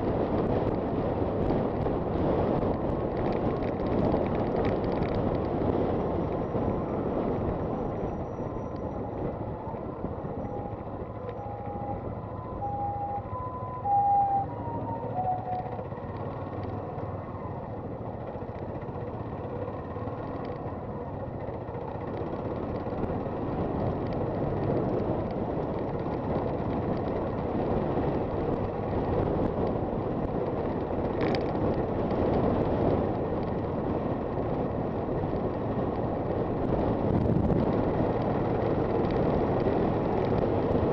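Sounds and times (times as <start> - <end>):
wind and road rush: 0.0 - 40.9
short beeping tones: 10.3 - 15.8.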